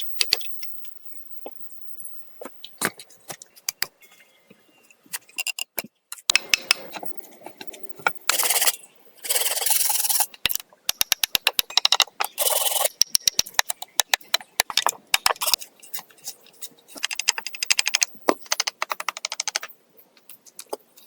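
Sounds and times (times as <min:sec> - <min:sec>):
scraping strokes: 0:08.3 - 0:10.3.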